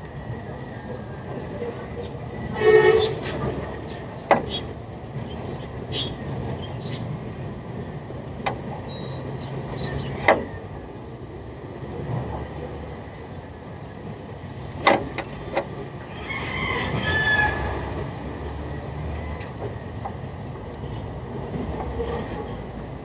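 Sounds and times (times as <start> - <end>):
rooster crowing: 16.1 - 18.1.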